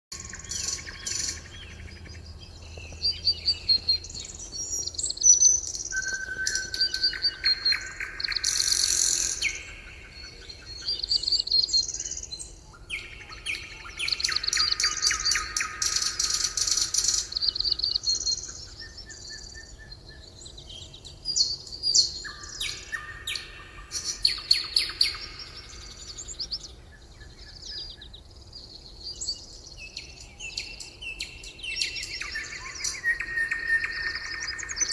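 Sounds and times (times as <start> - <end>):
songbirds trilling and chirping: 0.1 - 34.9.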